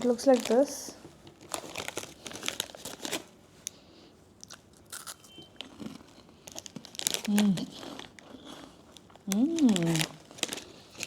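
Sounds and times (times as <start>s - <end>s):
crunching corn snack: 4.4s - 11.0s.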